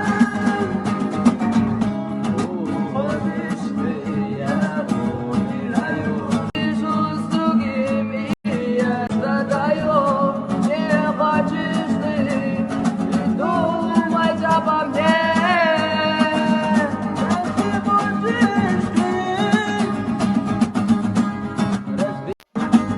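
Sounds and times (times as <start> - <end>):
person singing: 0.0 - 20.1, 21.8 - 22.9
acoustic guitar strumming: 0.0 - 22.9.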